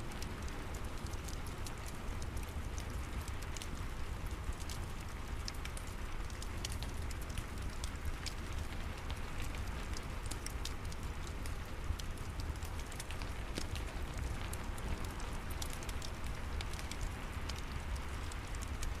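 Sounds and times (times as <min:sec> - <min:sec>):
steady rain: 0:00.0 - 0:19.0
fireplace crackling: 0:06.3 - 0:18.8.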